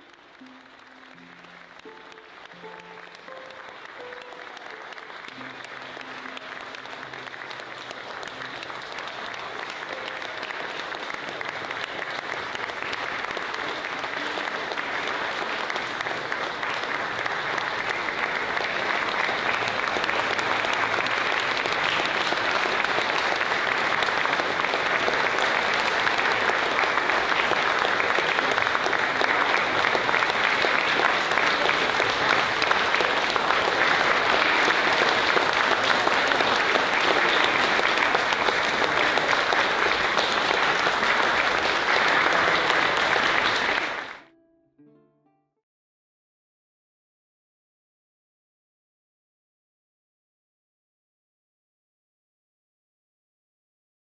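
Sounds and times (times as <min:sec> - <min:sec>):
instrument notes: 0:00.0 - 0:10.7, 0:44.1 - 0:45.6
audience applauding: 0:00.0 - 0:44.3.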